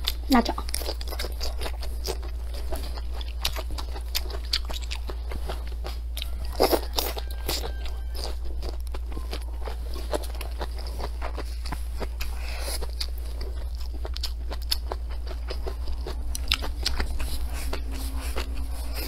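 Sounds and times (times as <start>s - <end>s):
crunching chili peppers: 0.0s - 19.0s.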